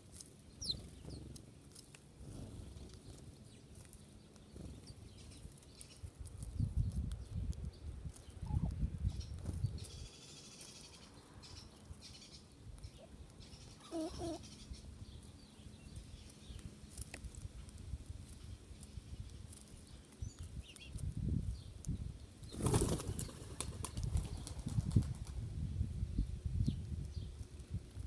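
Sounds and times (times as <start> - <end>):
bird wings flapping: 22.5 - 25.4.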